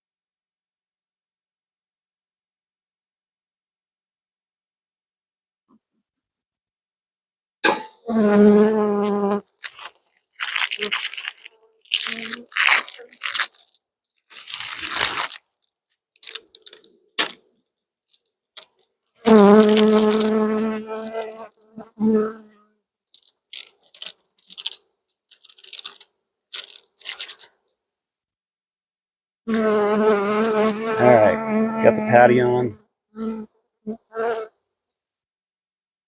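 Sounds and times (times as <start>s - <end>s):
crinkling and rustling: 9.0s - 21.6s, 23.1s - 27.6s
honey bees buzzing: 29.6s - 32.6s.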